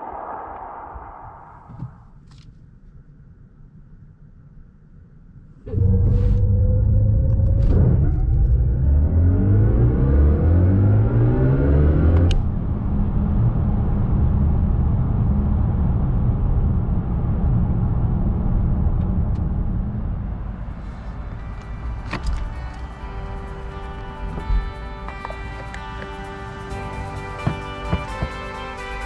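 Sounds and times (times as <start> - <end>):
heavy low rumble: 0.0 - 2.2, 2.8 - 29.0
road rumble: 5.6 - 29.0.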